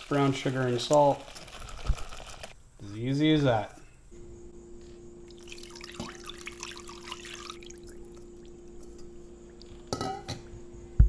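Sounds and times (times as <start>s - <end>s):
brine pouring into a pan: 0.0s - 2.5s, 5.3s - 8.0s
steady low hum: 2.5s - 11.0s.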